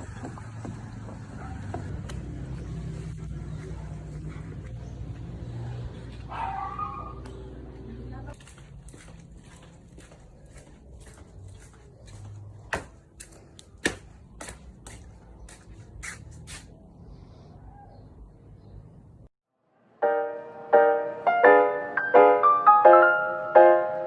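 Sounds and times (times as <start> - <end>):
soft piano music: 20.0 - 24.0.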